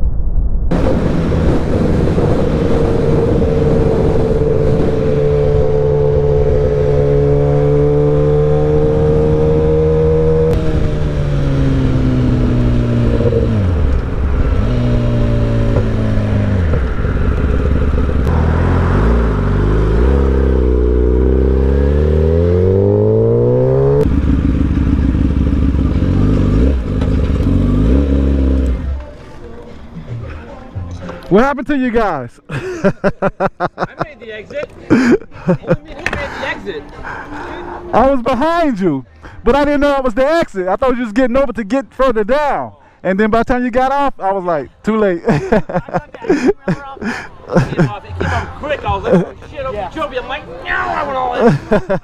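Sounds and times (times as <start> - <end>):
wind rush: 0.0 - 21.5
motorcycle engine: 0.7 - 29.2
gear change: 0.7 - 30.4.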